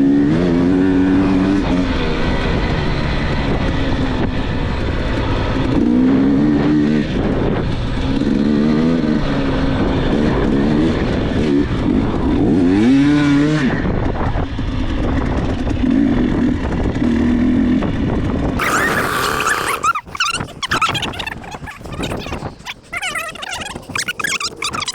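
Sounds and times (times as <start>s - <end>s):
dirt bike engine revving: 18.6s - 20.0s.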